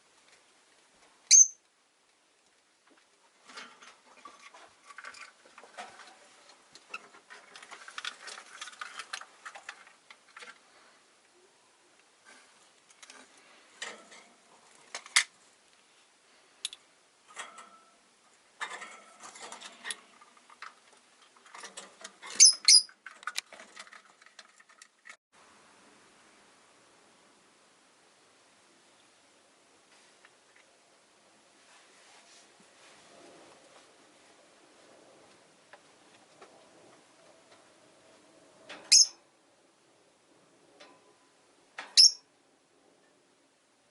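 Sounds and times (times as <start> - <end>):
short high bird chirps: 1.3 - 1.6
birds clicking and scratching in cage: 2.9 - 10.8, 12.2 - 15.3, 17.3 - 25.2.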